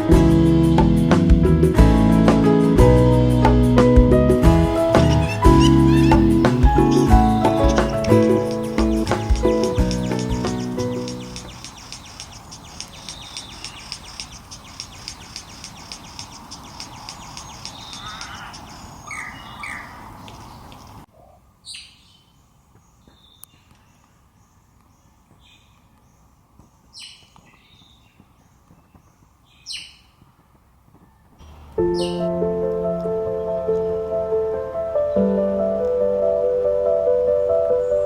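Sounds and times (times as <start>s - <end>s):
noisy background: 3.8s - 17.8s
wild birds calling: 4.4s - 30.2s, 31.0s - 38.0s.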